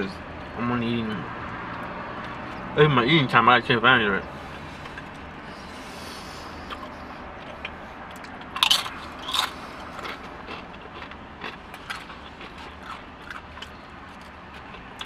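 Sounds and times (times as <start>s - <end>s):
chewing clicks: 6.7s - 15.0s
tortilla chip crunching: 6.7s - 15.0s.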